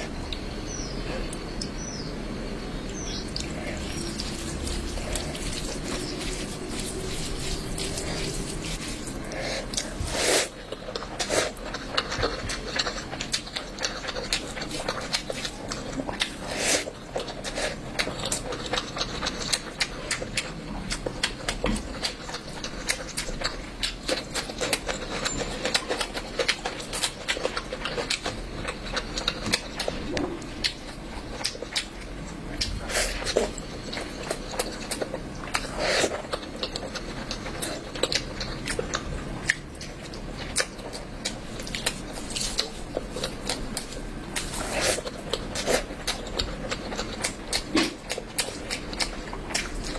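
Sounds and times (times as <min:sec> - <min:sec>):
person chewing and smacking: 0:02.9 - 0:49.9.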